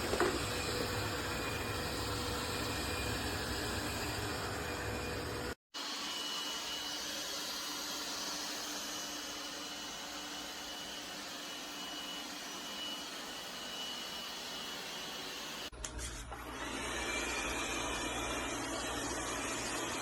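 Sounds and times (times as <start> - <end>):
robot vacuum whirring: 0.0 - 15.7.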